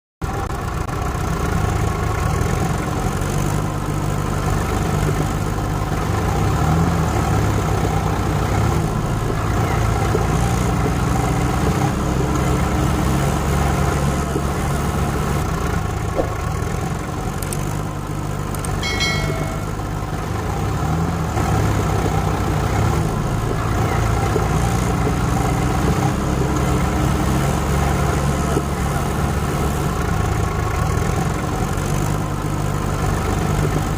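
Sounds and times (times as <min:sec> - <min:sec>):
tractor engine running: 0:00.2 - 0:33.9
short high-pitched tone: 0:18.8 - 0:19.9.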